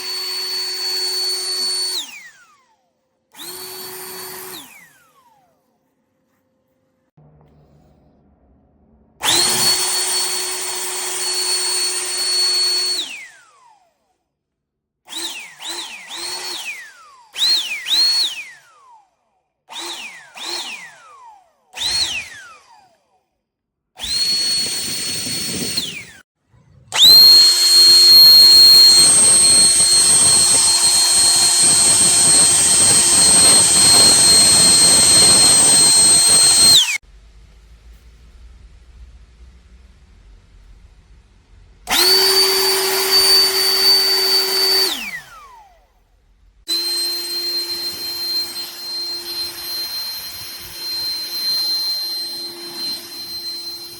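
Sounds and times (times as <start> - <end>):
leaf blower motor whining: 0.0 - 2.5, 3.4 - 5.4, 9.2 - 13.8, 15.1 - 18.6, 19.7 - 21.1, 21.8 - 22.8, 24.0 - 26.2, 26.9 - 37.0, 41.9 - 46.0, 46.7 - 53.9.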